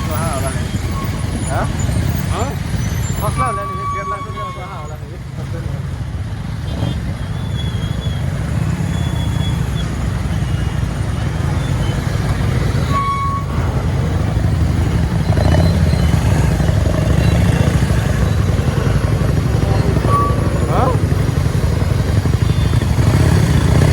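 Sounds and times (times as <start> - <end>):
motorcycle engine rumble: 0.0 - 23.9
brief high tone: 19.5 - 21.0.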